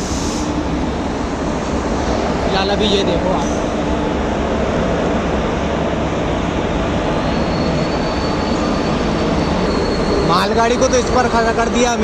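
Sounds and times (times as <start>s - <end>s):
train wheels rumbling on rails: 0.0s - 12.0s
high-pitched squeal: 7.1s - 12.0s.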